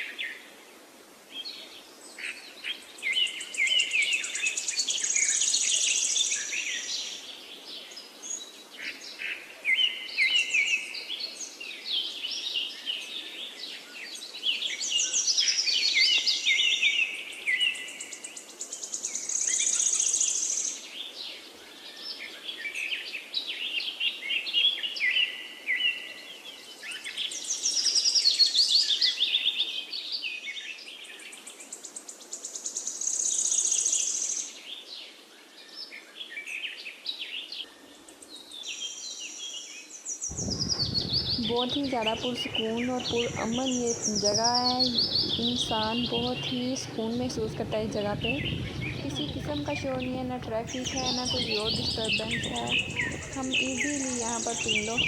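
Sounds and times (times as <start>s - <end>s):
birds chirping and trilling: 2.2s - 55.0s
faint background rush: 40.3s - 55.0s.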